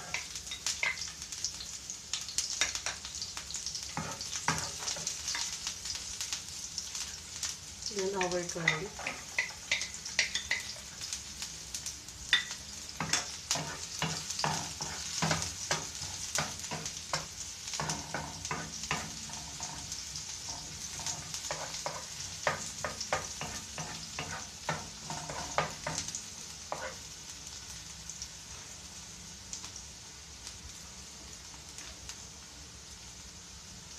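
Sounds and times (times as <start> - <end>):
onion and garlic sizzling in oil: 0.0 - 33.9
wooden spoon scraping a pan: 3.9 - 5.5, 8.1 - 11.0, 13.0 - 27.1.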